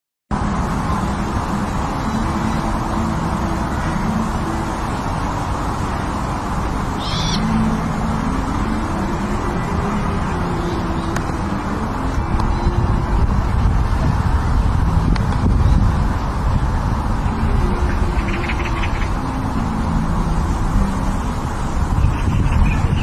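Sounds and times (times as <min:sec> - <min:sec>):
steady background noise: 0:00.3 - 0:23.0
bird low hooting calls: 0:07.0 - 0:07.5.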